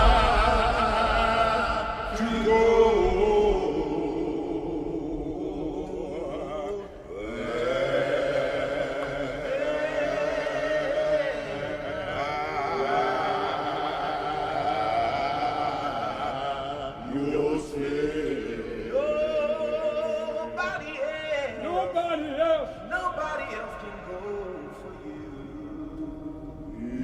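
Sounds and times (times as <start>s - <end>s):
men's a cappella group singing: 0.0s - 27.0s.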